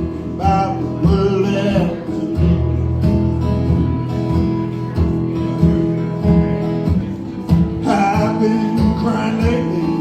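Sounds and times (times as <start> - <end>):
strummed acoustic guitar: 0.0 - 10.0.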